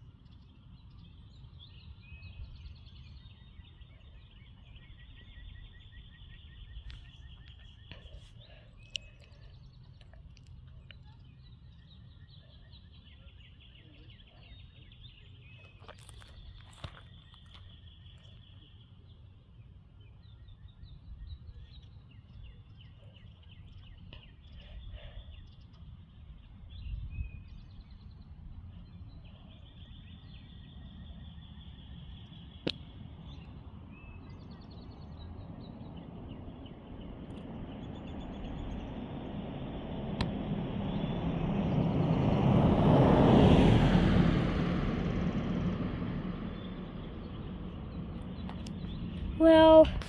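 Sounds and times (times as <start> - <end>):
small birds chirping: 0.0 - 43.9, 46.3 - 50.0
low rumble of wind: 0.0 - 50.0.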